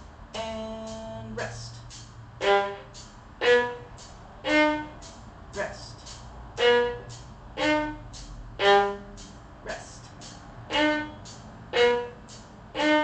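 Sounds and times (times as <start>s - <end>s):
person speaking: 1.1s - 2.0s, 5.6s - 6.2s, 9.6s - 10.8s
violin bowed notes: 2.4s - 10.0s, 10.6s - 13.0s.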